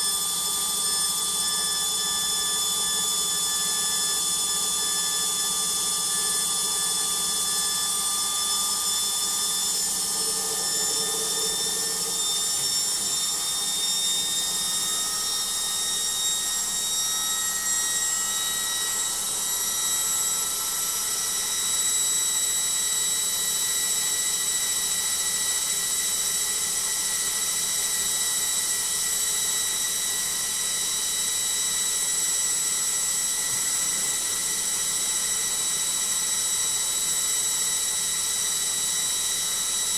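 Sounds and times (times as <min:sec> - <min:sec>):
washing machine spinning: 0:00.3 - 0:20.5.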